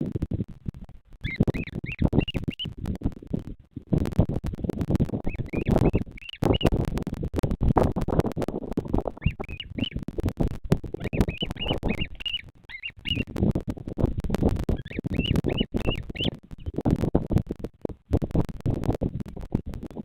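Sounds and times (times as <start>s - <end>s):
wind buffeting microphone: 0.0s - 20.0s
bird chirping: 1.2s - 2.7s, 5.2s - 6.8s, 9.2s - 10.0s, 10.9s - 13.3s, 14.7s - 16.8s.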